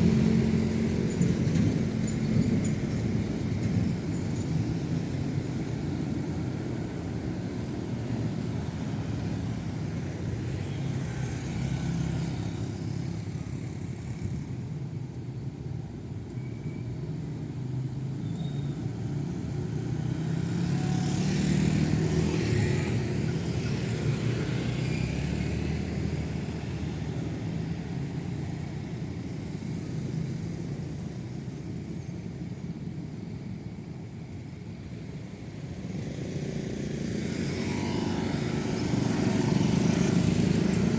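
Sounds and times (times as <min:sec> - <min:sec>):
road traffic: 0:00.0 - 0:40.9
loud vehicle passing: 0:35.9 - 0:40.9.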